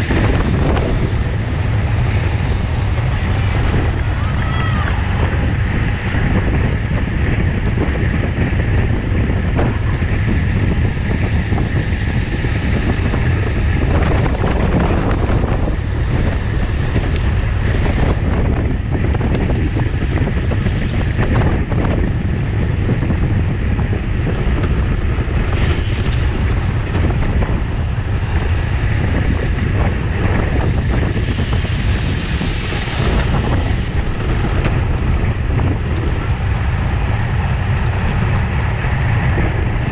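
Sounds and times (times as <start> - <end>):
wind roaring over microphone: 0.0 - 39.9.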